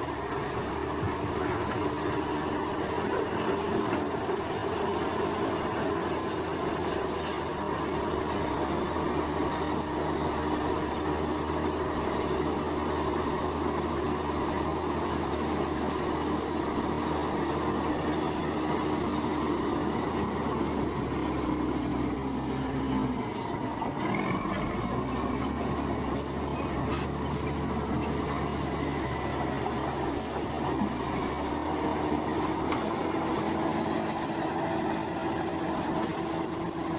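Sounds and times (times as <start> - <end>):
diesel engine drone: 0.0 - 36.9
metallic squeaking: 24.4 - 30.4, 31.0 - 36.9.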